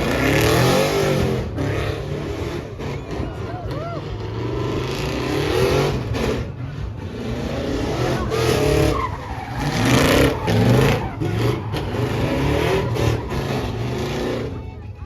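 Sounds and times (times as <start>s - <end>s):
truck engines revving: 0.0s - 15.0s
tyre squeal: 7.8s - 14.6s.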